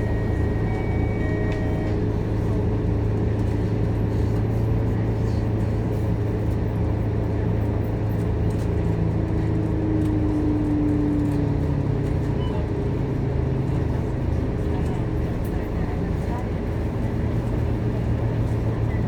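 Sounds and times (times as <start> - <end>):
high whine: 0.0 - 2.4
bus diesel engine drone: 0.0 - 19.0.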